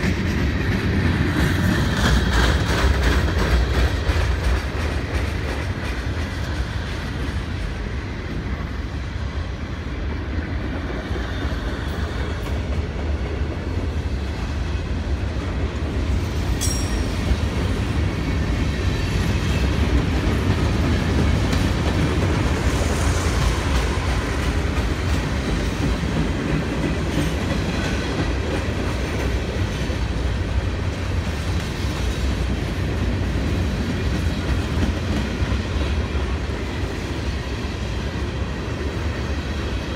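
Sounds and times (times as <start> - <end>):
wheels clicking over rail joints: 0.0 - 7.5
freight train cars rumbling: 0.0 - 39.9.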